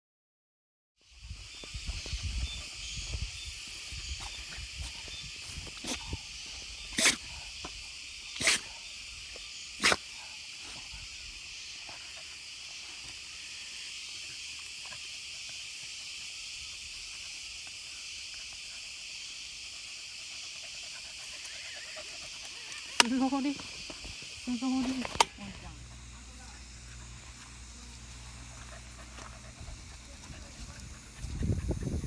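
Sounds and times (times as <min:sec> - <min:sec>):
dog sneezing: 0:07.0 - 0:07.2, 0:09.8 - 0:10.1.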